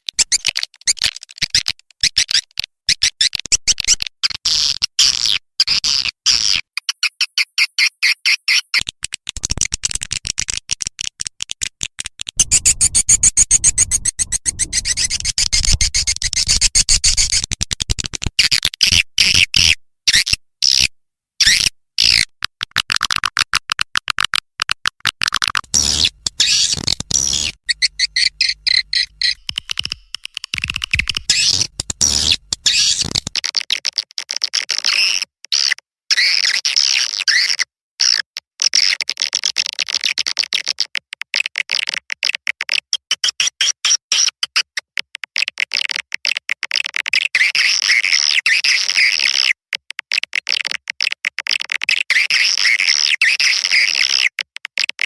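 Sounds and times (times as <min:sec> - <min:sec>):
swiftlet chirps and clicks: 0:12.4 - 0:17.4, 0:25.4 - 0:33.3.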